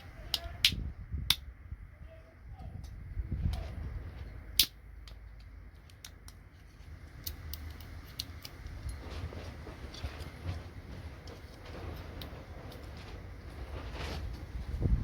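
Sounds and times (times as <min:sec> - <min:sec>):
sharp plastic snap: 0:04.6 - 0:05.2
plastic and metal parts clicking: 0:04.6 - 0:06.5, 0:07.1 - 0:09.2.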